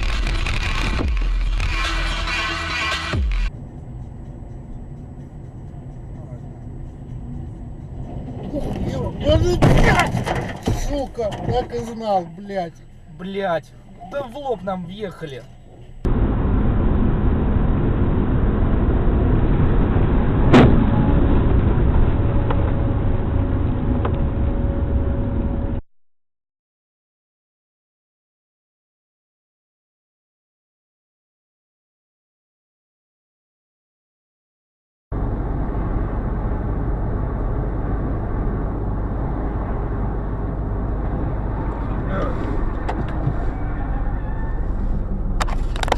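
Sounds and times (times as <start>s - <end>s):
car road and engine rumble: 0.0s - 25.8s, 35.1s - 45.9s
faint steady tone: 11.3s - 16.2s
sharp loud bang: 20.4s - 21.2s.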